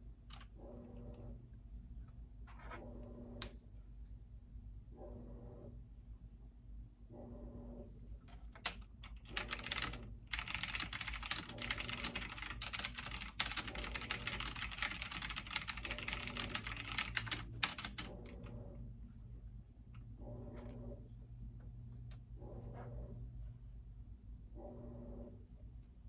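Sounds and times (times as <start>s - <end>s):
low steady hum: 0.0s - 26.0s
fast typing on keyboard: 8.6s - 18.4s.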